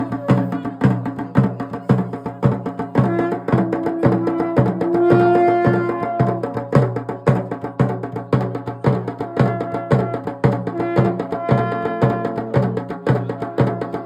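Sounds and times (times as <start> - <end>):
drum steady beat: 0.0 - 14.0
wind instrument long notes: 3.0 - 6.6, 9.3 - 14.0.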